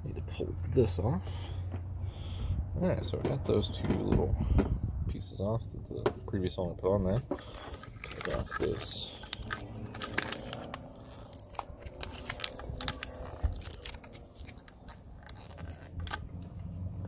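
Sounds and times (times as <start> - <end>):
fitting clicking and scraping: 7.1 - 17.0.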